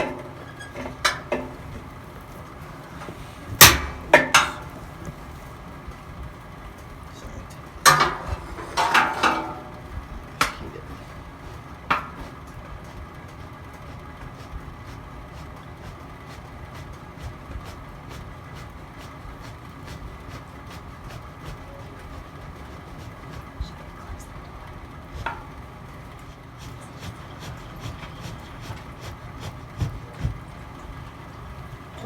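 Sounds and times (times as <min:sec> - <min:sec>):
wood fire crackling: 0:00.0 - 0:08.5.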